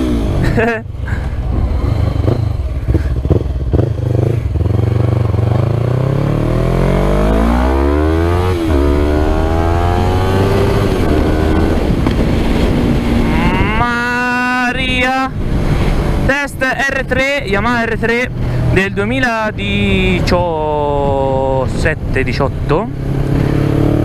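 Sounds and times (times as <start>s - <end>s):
motorcycle engine accelerating: 0.0s - 14.4s, 22.9s - 24.0s.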